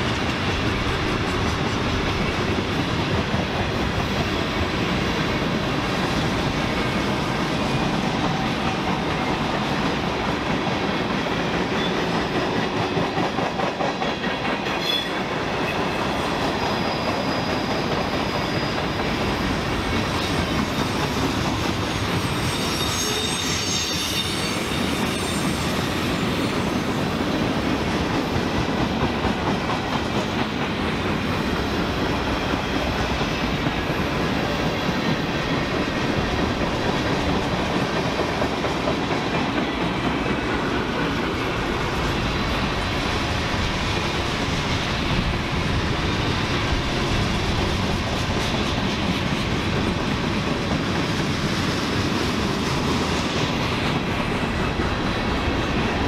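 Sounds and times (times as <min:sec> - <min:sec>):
faint wheel squeal: 0:16.6 - 0:19.2, 0:21.9 - 0:25.8.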